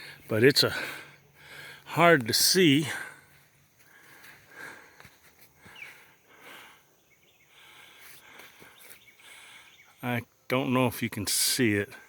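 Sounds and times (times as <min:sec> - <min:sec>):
bird chirp: 0:05.6 - 0:10.4.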